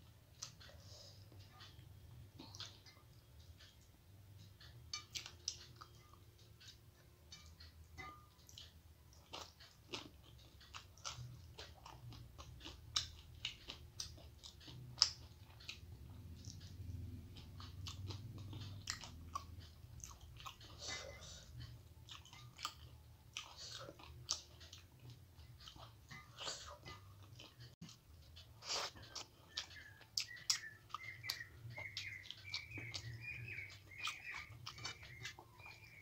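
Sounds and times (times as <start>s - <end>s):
person chewing food: 0.0s - 36.0s.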